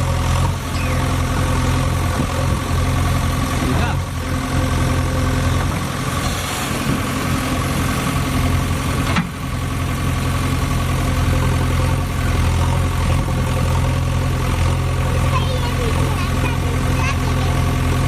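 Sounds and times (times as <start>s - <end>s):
heavy vehicle engine idling: 0.0s - 18.0s.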